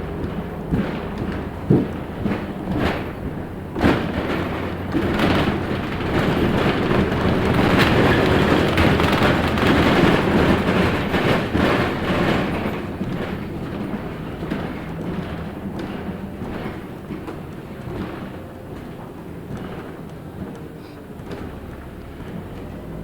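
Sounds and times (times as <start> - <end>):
bus engine drone: 0.0 - 23.0
road noise: 0.0 - 23.0.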